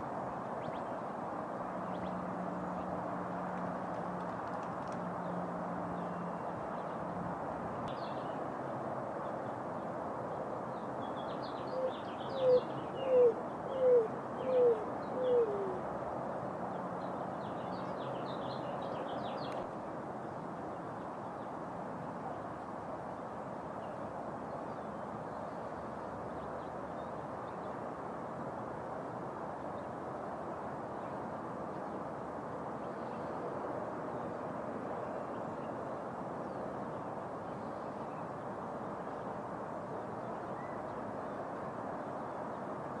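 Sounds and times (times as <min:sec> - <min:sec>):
steady background hiss: 0:00.0 - 0:43.0
roadrunner cooing: 0:12.4 - 0:15.8.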